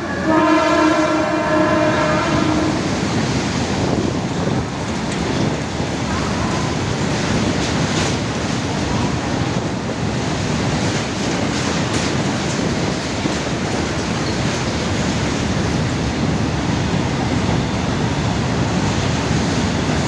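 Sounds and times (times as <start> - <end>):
train wheels roaring on rails: 0.0 - 20.0.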